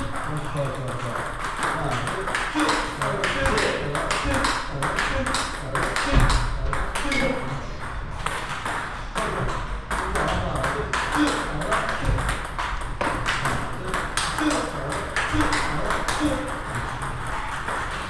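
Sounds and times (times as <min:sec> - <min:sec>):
table tennis ball clicking: 0:07.8 - 0:09.0, 0:09.6 - 0:18.0.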